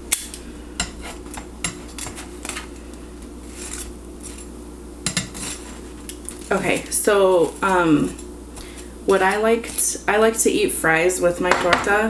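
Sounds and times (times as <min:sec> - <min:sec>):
metal utensil scraping griddle pan: 0:03.5 - 0:05.9.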